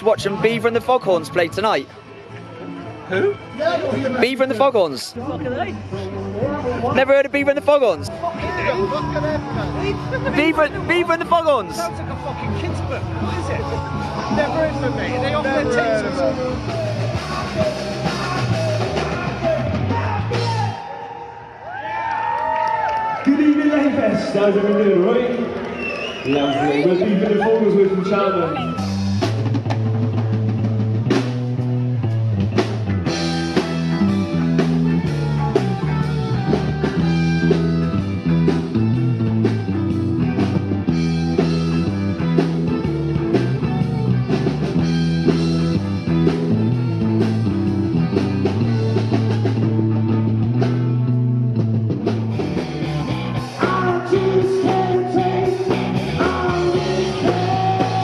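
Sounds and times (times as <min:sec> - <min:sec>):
rock band playing: 0:00.0 - 0:20.9, 0:26.5 - 0:58.0
repeating bass line: 0:28.6 - 0:58.0.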